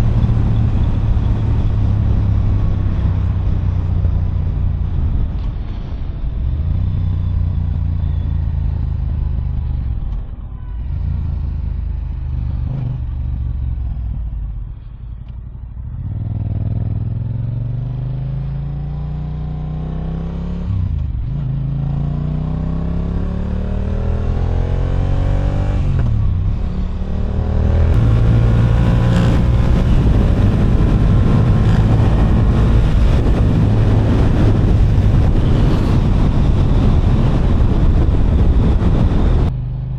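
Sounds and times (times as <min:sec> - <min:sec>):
motorcycle engine revving: 0:15.8 - 0:39.9
wind on microphone: 0:23.8 - 0:39.6.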